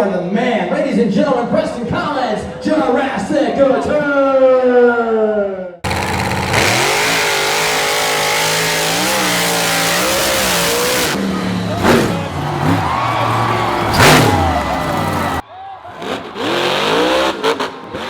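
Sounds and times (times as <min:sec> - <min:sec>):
monster truck engine revving: 0:05.8 - 0:18.0.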